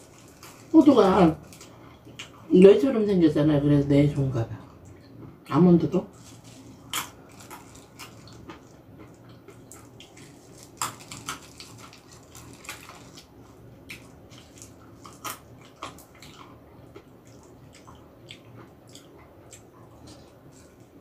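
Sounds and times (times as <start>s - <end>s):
chewing nuts crunching: 6.2s - 21.0s.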